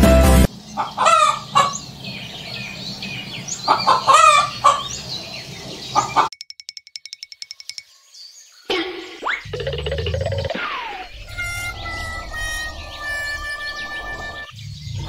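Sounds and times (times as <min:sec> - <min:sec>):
music: 0:00.0 - 0:00.5
chicken clucking: 0:00.8 - 0:01.8, 0:03.6 - 0:05.0
rapid even chirping: 0:00.8 - 0:08.4, 0:09.2 - 0:15.0.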